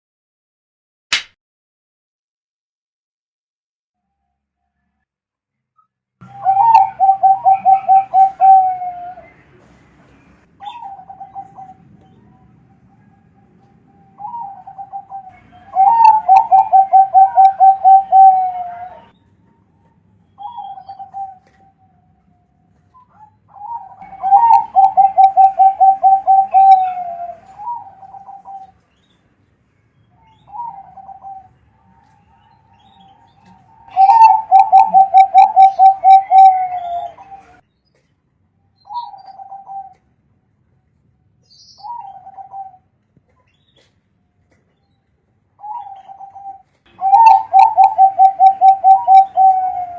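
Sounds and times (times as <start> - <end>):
dove cooing: 6.3 - 9.3, 10.6 - 12.4, 14.1 - 19.1, 20.4 - 21.7, 23.0 - 28.7, 30.5 - 37.6, 38.9 - 40.0, 41.8 - 42.8, 45.6 - 49.9.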